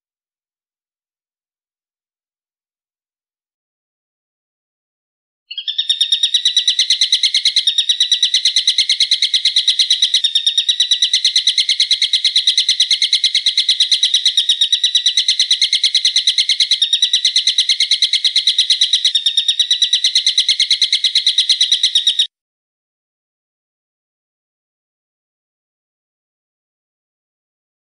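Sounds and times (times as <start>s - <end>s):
bird calling rapid notes: 5.5s - 22.3s.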